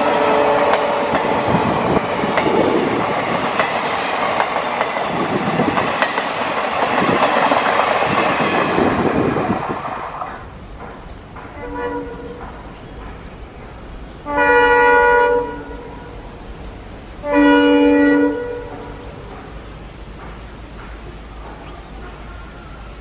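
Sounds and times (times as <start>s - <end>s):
locomotive horn blasts: 0.0s - 2.0s, 11.6s - 12.4s, 14.2s - 16.2s, 17.2s - 19.1s
train rumbling past: 0.0s - 23.0s.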